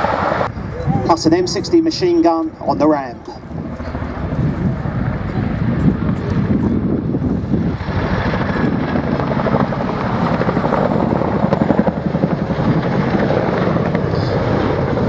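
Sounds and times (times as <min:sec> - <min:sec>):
helicopter rotors chopping: 0:00.0 - 0:15.0
turbine noise: 0:00.0 - 0:15.0.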